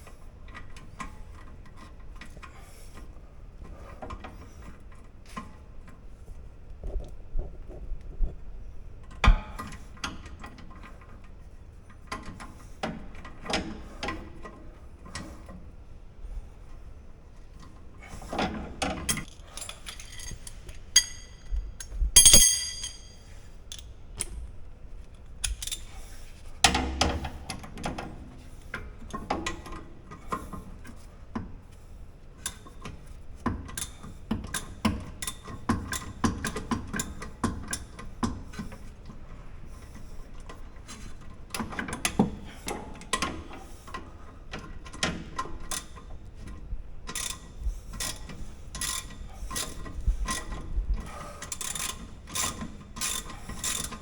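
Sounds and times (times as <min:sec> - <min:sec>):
metal clinks and knocks: 0:19.3 - 0:23.3
loud ringing metal clink: 0:21.0 - 0:21.5, 0:22.2 - 0:23.3.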